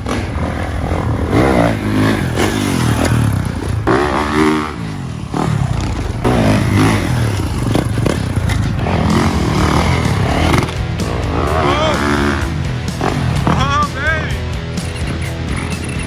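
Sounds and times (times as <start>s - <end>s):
low engine rumble: 0.0s - 16.0s
off-road engines revving: 0.0s - 16.0s.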